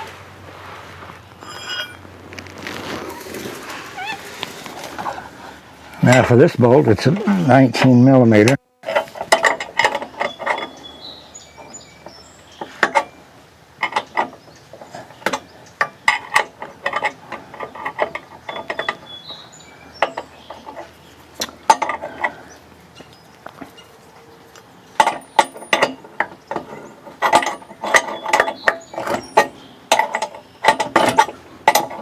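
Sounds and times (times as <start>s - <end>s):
small metal clinks: 1.4s - 2.0s.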